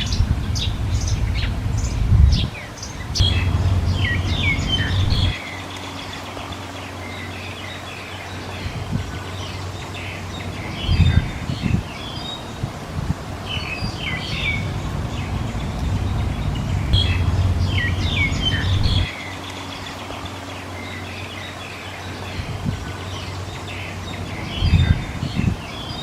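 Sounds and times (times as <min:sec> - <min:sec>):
loud low rumble: 0:00.0 - 0:05.5, 0:08.6 - 0:19.3
small birds chirping: 0:00.0 - 0:26.0.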